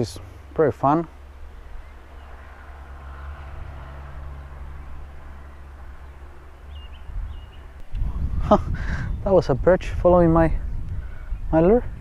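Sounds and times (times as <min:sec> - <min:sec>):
wind on microphone: 0:01.4 - 0:12.0
bird chirps: 0:04.3 - 0:07.9.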